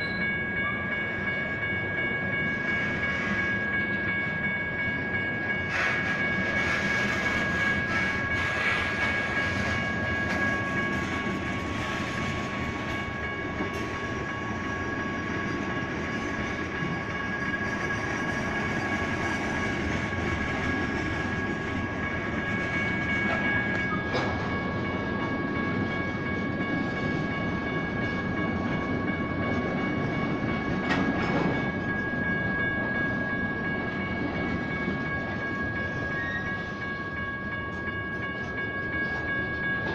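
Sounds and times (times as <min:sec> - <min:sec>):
crossing bells ringing: 0:00.0 - 0:39.9
train wheels rumbling on rail: 0:00.0 - 0:39.9.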